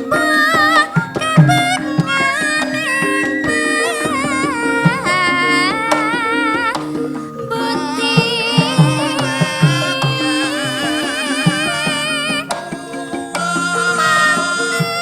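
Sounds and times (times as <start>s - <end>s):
metallophones and gongs: 0.0s - 15.0s
person singing ornamented melody: 0.0s - 15.0s.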